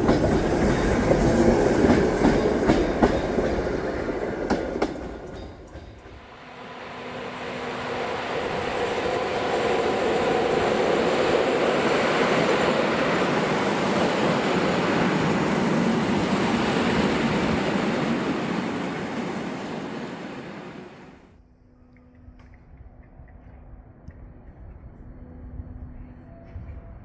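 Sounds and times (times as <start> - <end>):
electric train passing: 0.0 - 21.4.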